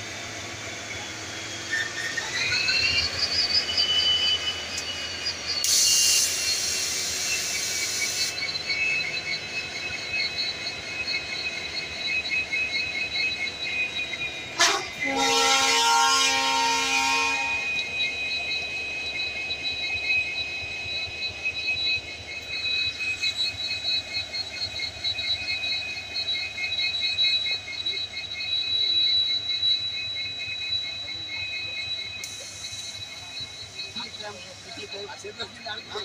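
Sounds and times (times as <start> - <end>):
high-pitched whine: 0.0 - 36.0
train horn blast: 14.6 - 17.8.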